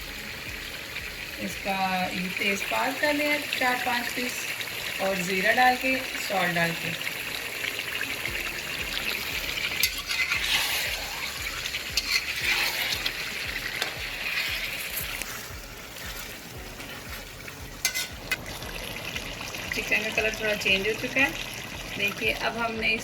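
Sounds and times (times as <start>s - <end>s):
chicken sizzling in a pot: 0.0s - 23.0s
spoon scraping a pot: 9.6s - 17.2s, 17.8s - 18.4s.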